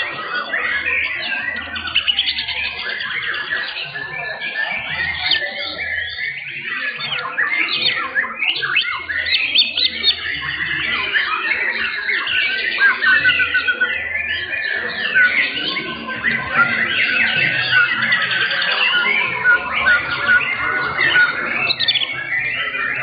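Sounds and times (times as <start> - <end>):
birds singing whistled phrases: 0.0 - 23.0.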